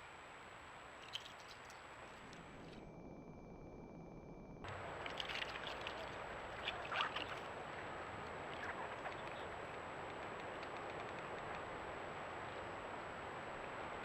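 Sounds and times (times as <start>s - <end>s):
light rustles and clicks: 1.0s - 2.8s.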